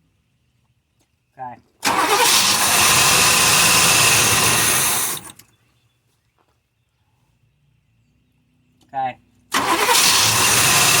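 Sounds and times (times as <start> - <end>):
car engine running: 1.9 - 5.4, 9.6 - 11.0.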